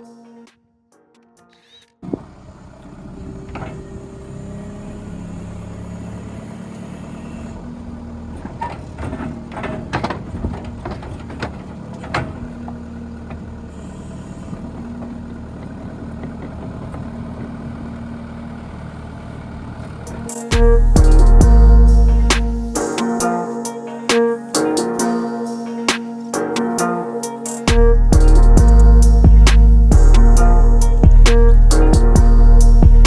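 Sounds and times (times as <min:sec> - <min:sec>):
truck engine idling: 0:11.6 - 0:23.3, 0:27.7 - 0:33.0.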